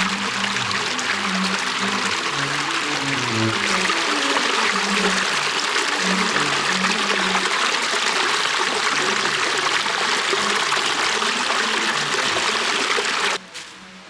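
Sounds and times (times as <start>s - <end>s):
soft background music: 0.0s - 7.8s
stream flowing: 0.0s - 13.4s.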